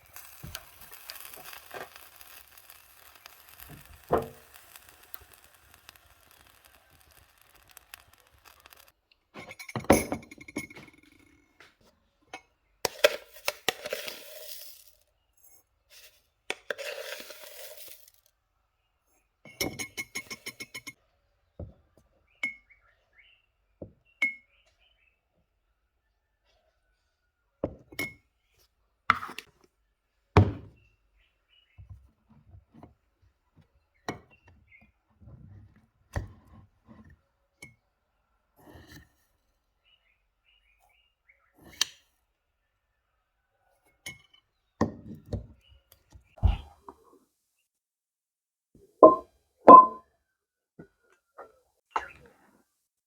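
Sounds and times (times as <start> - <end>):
clinks and knocks: 0.1 - 11.4, 19.5 - 21.0, 49.0 - 50.0.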